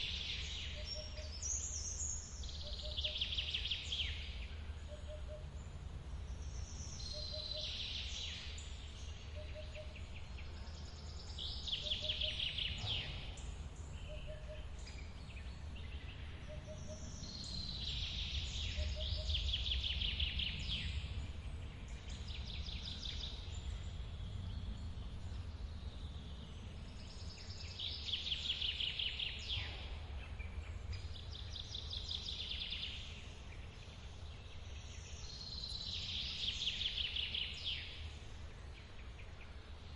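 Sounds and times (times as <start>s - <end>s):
songbird trilling: 0.2s - 2.0s, 6.8s - 10.2s, 11.4s - 15.2s.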